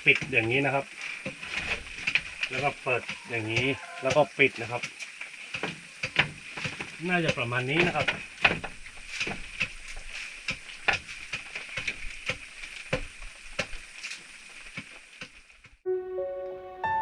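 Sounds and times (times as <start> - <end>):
music: 15.9 - 17.0.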